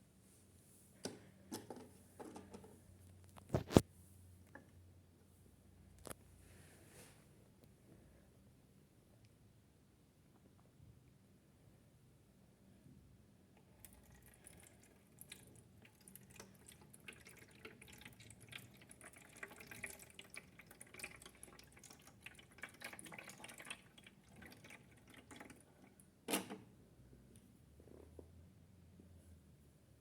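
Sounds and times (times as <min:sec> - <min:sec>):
water dripping and splashing: 0:14.1 - 0:25.6.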